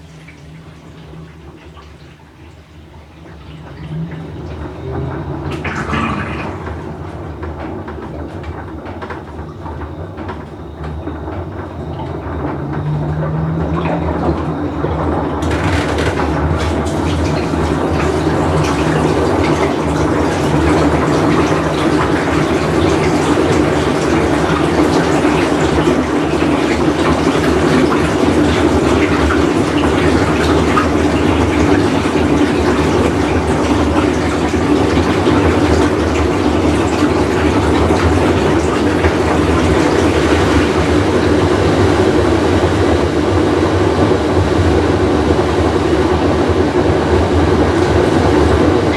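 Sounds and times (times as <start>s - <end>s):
washing machine rumbling: 0.0s - 48.9s.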